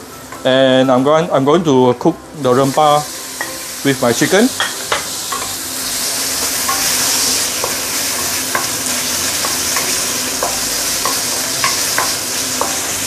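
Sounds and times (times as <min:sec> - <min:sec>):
chicken sizzling in hot oil: 0:02.3 - 0:13.0
spatula scraping and tapping pan: 0:06.4 - 0:13.0.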